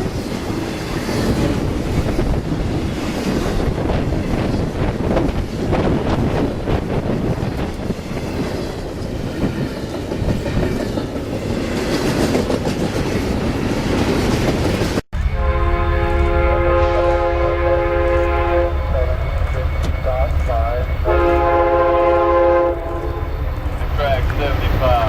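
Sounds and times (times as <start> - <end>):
wind on microphone: 0.0 - 15.3
train rumbling past: 0.0 - 25.0
locomotive air horn blast: 15.2 - 23.5.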